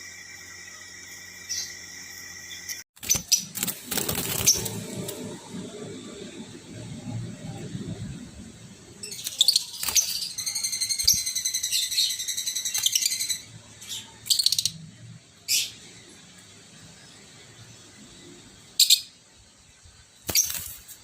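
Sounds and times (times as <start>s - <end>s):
lovebirds chirping: 9.0s - 14.8s.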